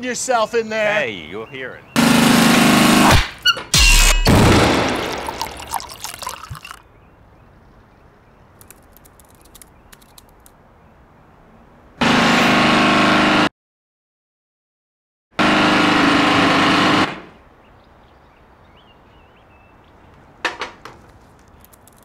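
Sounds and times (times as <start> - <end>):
faint clicks: 8.6 - 10.6, 21.4 - 22.0.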